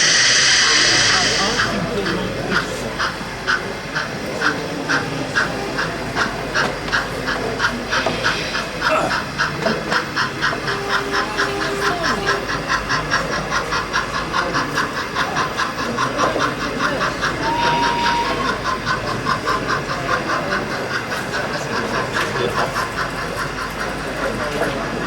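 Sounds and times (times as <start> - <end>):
model locomotive chuffing: 0.0 - 25.0.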